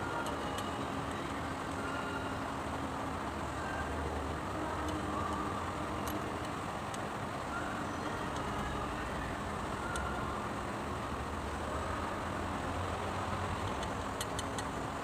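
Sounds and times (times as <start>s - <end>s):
machine running hum: 0.0s - 15.0s.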